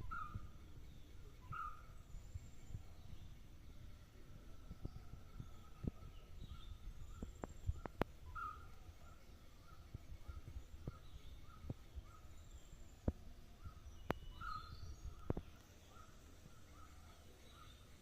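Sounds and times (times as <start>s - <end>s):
bird calling: 0.0s - 0.5s, 1.3s - 2.0s, 5.5s - 12.8s, 13.6s - 17.9s
bird trills: 0.0s - 2.0s, 6.4s - 13.0s, 13.6s - 17.9s.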